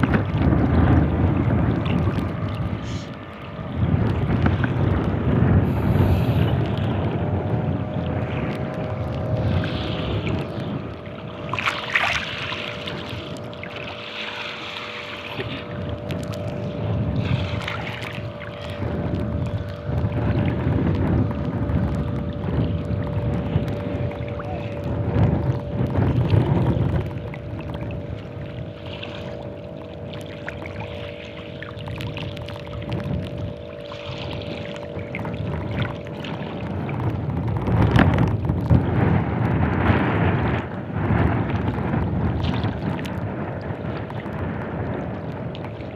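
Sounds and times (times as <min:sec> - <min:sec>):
waves washing: 0:00.0 - 0:45.9
wind buffeting microphone: 0:00.0 - 0:45.9.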